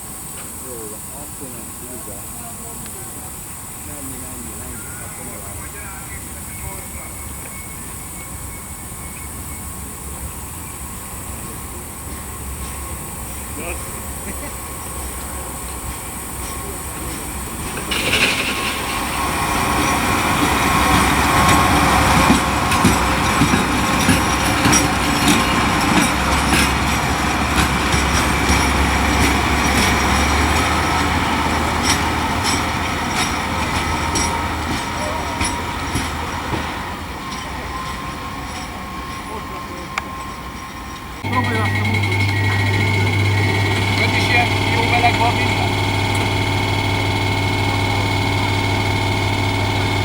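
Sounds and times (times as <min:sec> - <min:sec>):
train wheels clicking over rail joints: 0:00.0 - 0:50.0
low running hum: 0:41.2 - 0:50.0.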